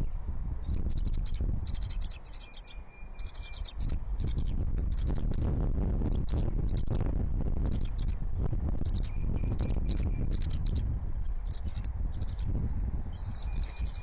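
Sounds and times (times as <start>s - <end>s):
wind buffeting microphone: 0.0s - 14.0s
rapid high chirping ticks: 0.6s - 7.0s, 7.6s - 8.2s, 8.8s - 14.0s.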